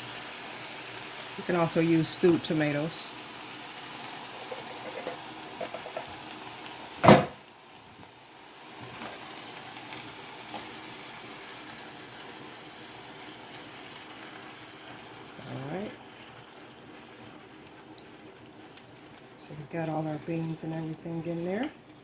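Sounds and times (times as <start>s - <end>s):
cooking pot hiss: 0.0s - 22.0s
loud sharp knock: 7.0s - 7.4s.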